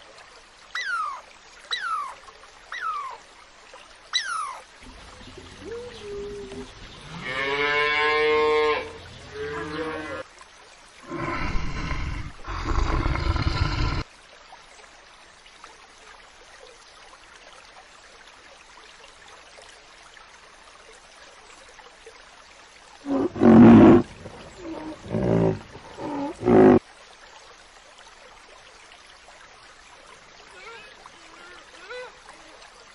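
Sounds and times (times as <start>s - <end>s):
animal roaring: 11.0s - 14.0s, 23.1s - 26.8s
short pitched animal calls: 23.1s - 26.8s.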